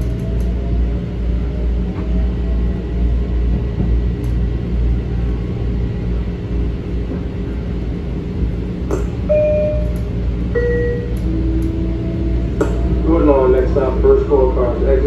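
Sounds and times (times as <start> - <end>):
click: 0.0 - 0.6, 4.2 - 4.4, 8.9 - 9.2, 9.8 - 10.1, 10.8 - 11.8
train wheels rumbling on rail: 0.0 - 15.0.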